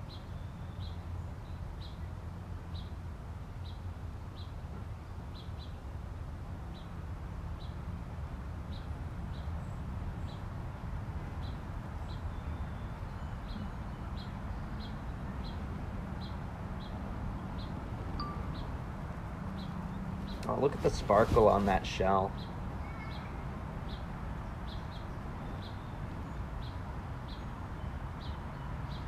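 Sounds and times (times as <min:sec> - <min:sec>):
high bird chirp: 0:17.6 - 0:18.8.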